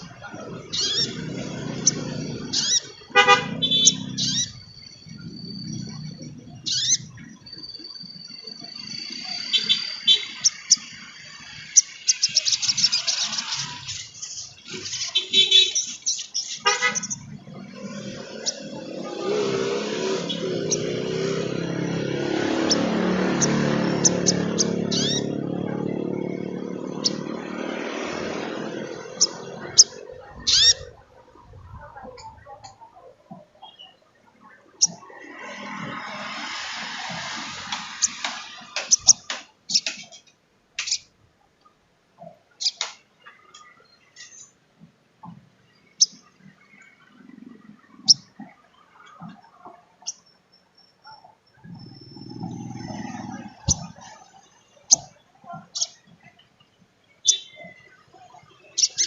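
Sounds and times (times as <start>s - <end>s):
passing motor vehicle: 0.0s - 7.6s, 8.2s - 33.4s, 34.2s - 40.2s, 45.2s - 56.4s
bird high chirps: 0.7s - 17.4s, 20.3s - 27.4s, 28.7s - 31.0s, 32.2s - 34.1s, 38.9s - 40.1s, 42.5s - 44.5s, 50.0s - 54.1s, 54.8s - 56.4s, 57.1s - 59.0s
sharp bird chips: 0.7s - 25.7s, 37.6s - 40.2s, 40.8s - 41.1s, 42.6s - 43.1s, 55.7s - 56.0s, 58.8s - 59.0s
bird high sharp chips: 35.6s - 40.2s.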